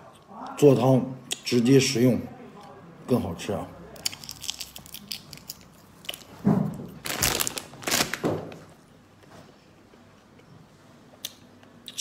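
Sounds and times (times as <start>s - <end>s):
crunching shrimp shells: 4.0s - 8.6s.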